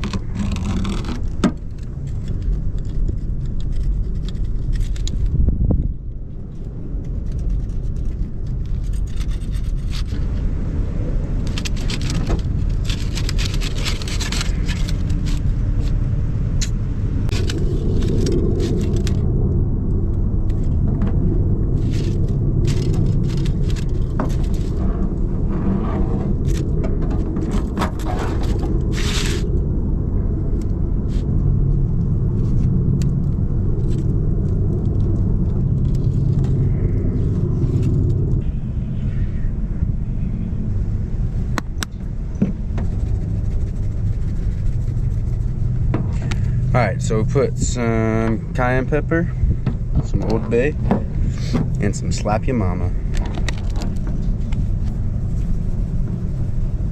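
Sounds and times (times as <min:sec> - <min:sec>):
steady low rumble: 0:00.0 - 0:56.9
short scrapes and clicks: 0:11.4 - 0:16.0, 0:21.8 - 0:29.6.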